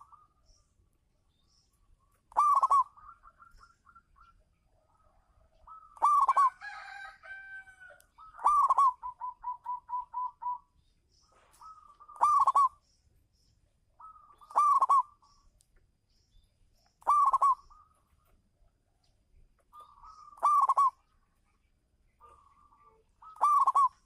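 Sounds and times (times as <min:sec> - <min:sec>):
dove cooing: 0:02.3 - 0:10.7, 0:11.3 - 0:12.8, 0:14.0 - 0:15.3, 0:17.0 - 0:18.1, 0:19.7 - 0:21.2, 0:22.2 - 0:24.0.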